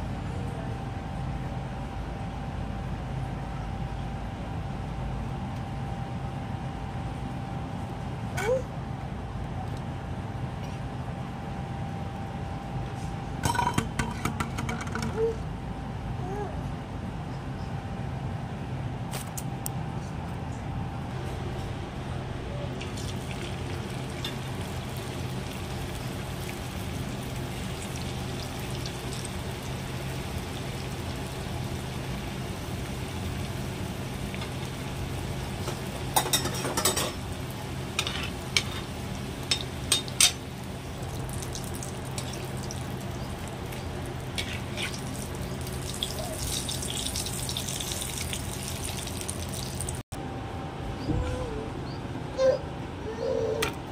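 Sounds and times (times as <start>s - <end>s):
low steady hum: 0.0s - 53.9s
food deep-frying in hot oil: 22.8s - 50.0s.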